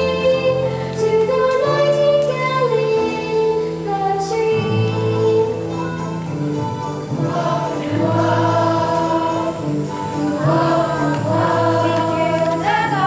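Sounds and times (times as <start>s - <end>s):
musical accompaniment: 0.0s - 13.0s
chorus singing held notes: 7.0s - 13.0s.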